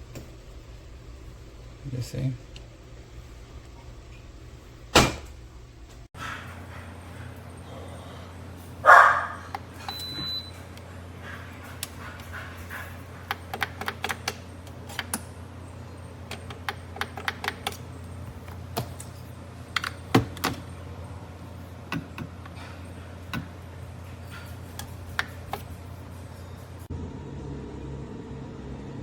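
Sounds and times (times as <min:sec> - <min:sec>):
low hum: 0:26.3 - 0:29.0.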